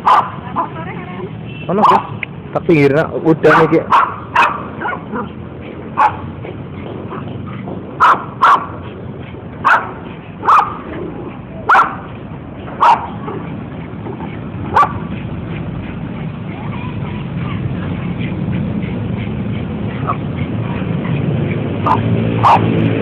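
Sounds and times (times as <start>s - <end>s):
dog barking: 0.0s - 0.8s, 1.8s - 2.2s, 3.4s - 7.3s, 8.0s - 8.9s, 9.6s - 10.9s, 11.6s - 12.1s, 12.8s - 13.5s, 14.2s - 15.1s, 21.8s - 22.8s.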